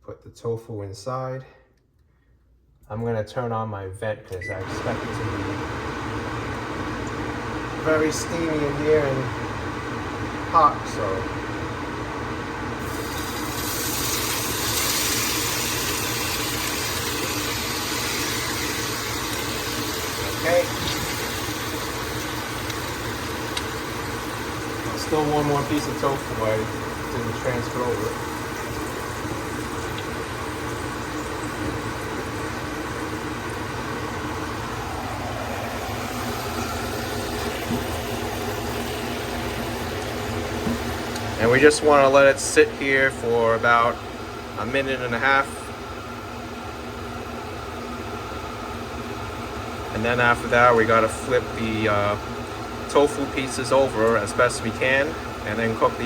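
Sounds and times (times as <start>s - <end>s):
range hood fan humming: 0.2s - 56.0s
tofu sizzling in oil: 12.8s - 24.9s, 28.1s - 33.9s.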